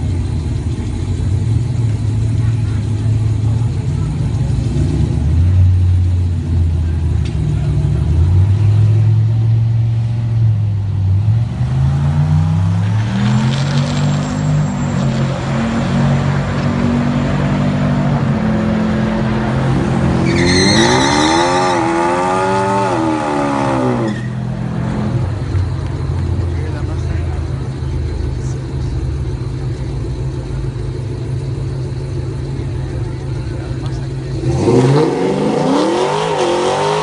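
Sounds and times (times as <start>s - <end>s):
car engine revving: 0.0s - 37.0s
high engine note during burnout: 11.3s - 25.7s.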